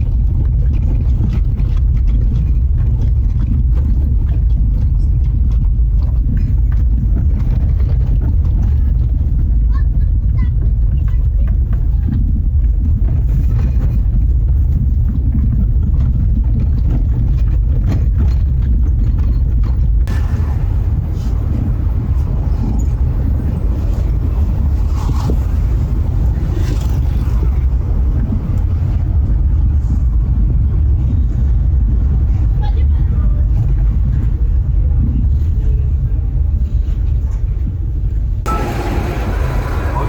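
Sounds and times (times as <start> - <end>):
vehicle engine and road rumble: 0.0 - 40.0.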